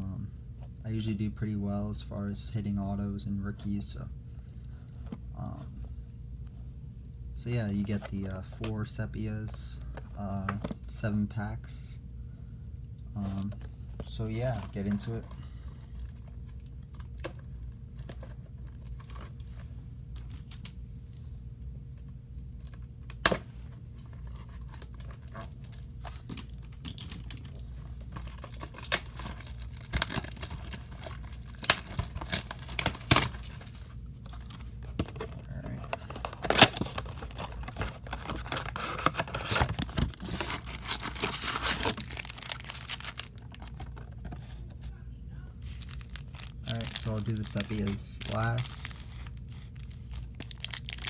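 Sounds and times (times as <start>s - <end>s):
steady low hum: 0.0s - 51.0s
cardboard and wrapper snapping: 22.6s - 23.5s, 26.3s - 44.6s, 45.7s - 51.0s
wrapper crinkling and tearing: 24.2s - 44.6s, 45.7s - 51.0s.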